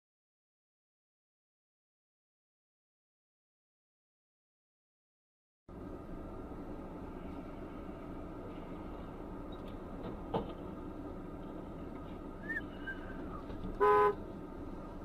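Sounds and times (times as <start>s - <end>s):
steady low rumble: 5.7s - 15.0s.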